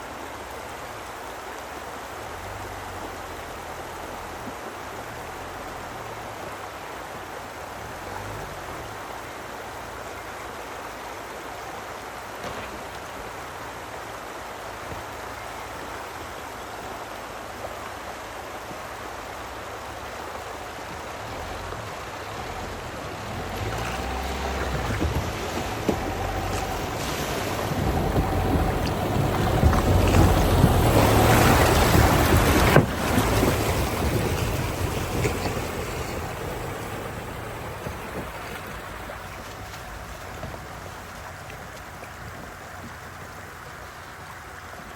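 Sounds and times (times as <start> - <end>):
river water rushing: 0.0 - 44.9
low rumble: 21.6 - 44.0.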